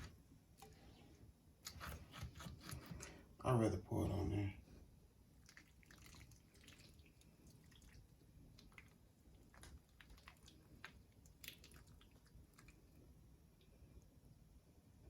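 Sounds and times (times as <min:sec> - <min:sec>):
sauce dripping: 0:05.3 - 0:14.1.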